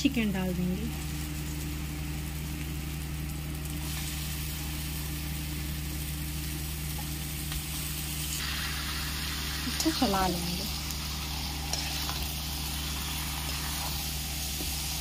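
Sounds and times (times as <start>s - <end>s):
steady low hum: 0.0s - 15.0s
chicken sizzling in a pan: 0.6s - 15.0s.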